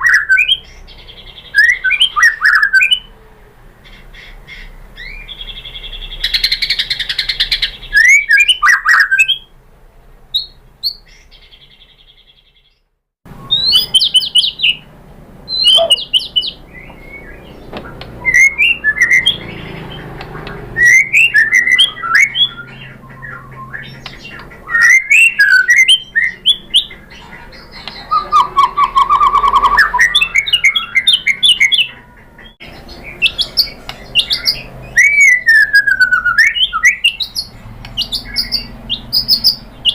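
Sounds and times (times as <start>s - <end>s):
songbird whistling and trilling: 0.0s - 3.1s, 4.2s - 9.5s, 10.3s - 12.7s, 13.3s - 14.8s, 15.5s - 39.9s.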